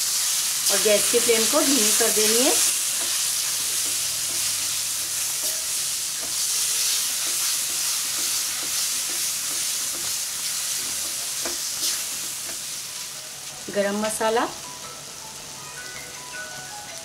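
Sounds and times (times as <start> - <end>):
vegetables sizzling in oil: 0.0 - 17.0
spatula scraping pan: 1.8 - 12.6.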